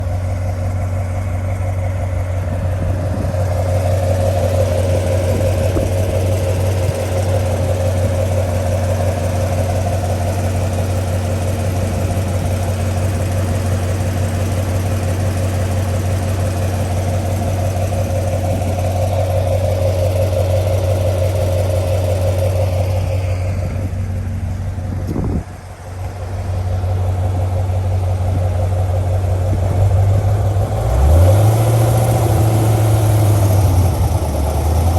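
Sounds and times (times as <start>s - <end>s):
car engine idling: 0.0s - 34.9s
engine ticking: 0.0s - 34.9s.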